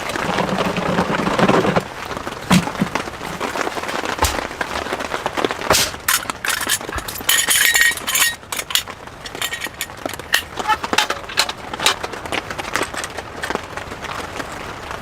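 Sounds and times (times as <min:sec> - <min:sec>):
short dense rattle: 0:00.6 - 0:11.4
hard objects clinking and knocking: 0:01.4 - 0:11.6.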